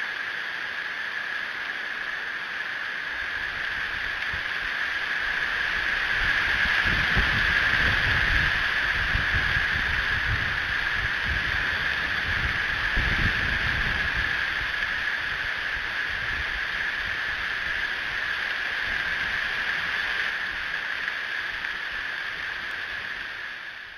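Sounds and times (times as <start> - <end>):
steady hiss: 0.0 - 23.9
wind buffeting microphone: 5.2 - 18.2.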